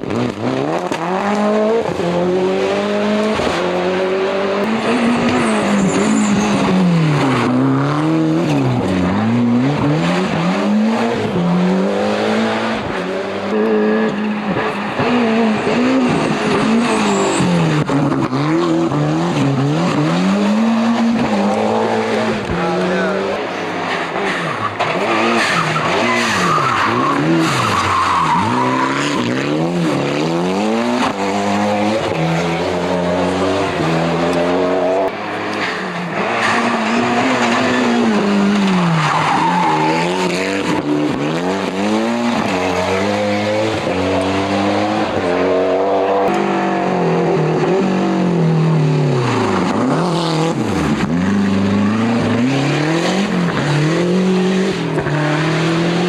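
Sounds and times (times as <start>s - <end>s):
rally car engines revving: 0.0s - 56.0s
tyre squeal: 4.8s - 7.2s, 16.6s - 18.1s, 24.3s - 29.4s.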